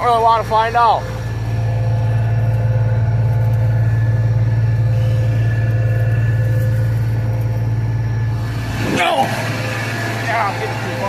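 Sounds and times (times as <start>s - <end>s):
combine harvester drone: 0.0s - 11.0s
faint whining tones: 0.0s - 11.0s.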